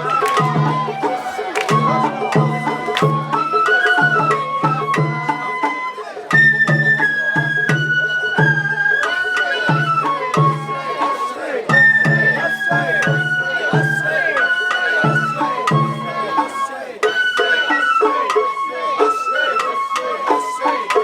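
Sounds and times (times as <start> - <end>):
taiko drum beats: 0.0 - 14.2
bamboo flute melody: 0.0 - 21.0.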